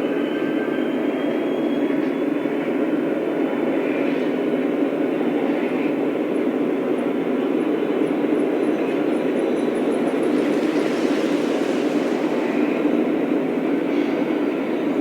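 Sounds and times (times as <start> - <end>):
model train rumbling on track: 2.6 - 15.0.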